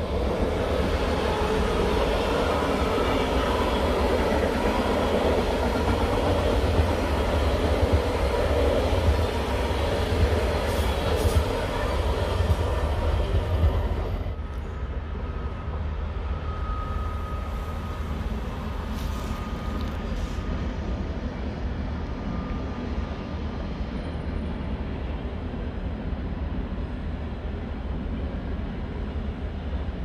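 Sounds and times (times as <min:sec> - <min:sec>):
train wheels rolling loudly: 0:00.0 - 0:14.7
faint high whine: 0:00.0 - 0:29.6
distant train rumble: 0:00.0 - 0:30.0.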